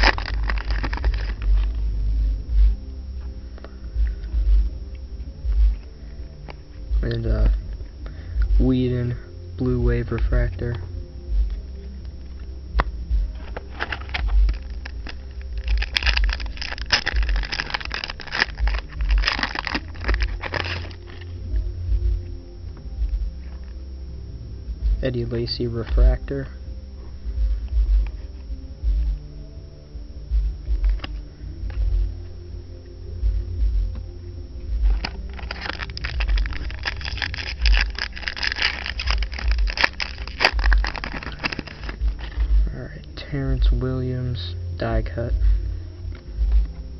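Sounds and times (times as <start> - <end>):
foil wrapper crinkling and tearing: 0.0 - 1.8, 13.4 - 21.4, 34.9 - 42.6.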